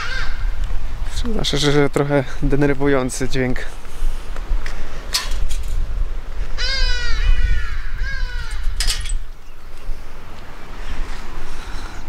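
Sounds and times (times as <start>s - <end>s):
harsh bird calls: 0.0s - 0.6s, 6.5s - 10.3s
wind rumble on microphone: 0.0s - 12.0s.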